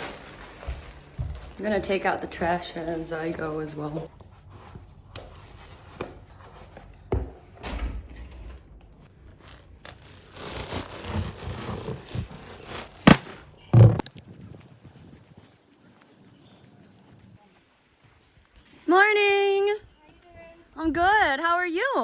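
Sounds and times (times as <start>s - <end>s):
rubbish bag rustling: 0.0s - 4.1s, 9.1s - 14.1s
heavy thud: 13.0s - 14.0s.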